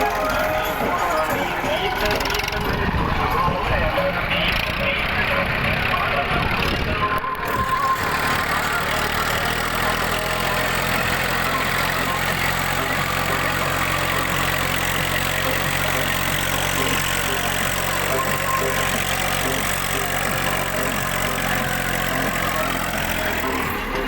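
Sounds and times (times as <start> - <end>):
tractor engine droning: 0.0 - 24.0.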